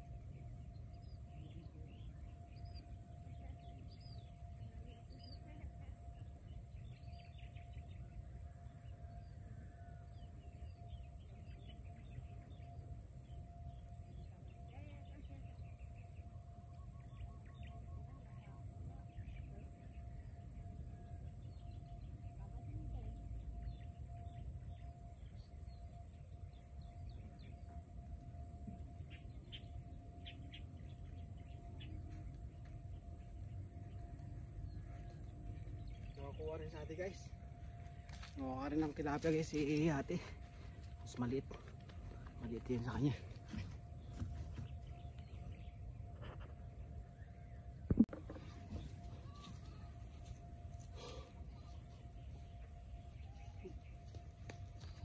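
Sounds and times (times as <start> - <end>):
high-pitched drone: 22.0 - 55.0
birds chirping: 34.8 - 55.0.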